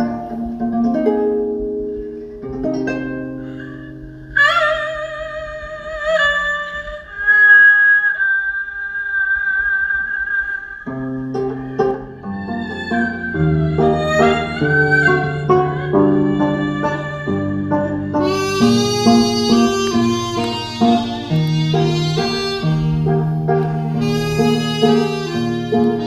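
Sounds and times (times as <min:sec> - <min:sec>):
plucked string notes: 0:00.0 - 0:06.9, 0:10.9 - 0:26.0
bamboo flute with vibrato: 0:00.0 - 0:26.0.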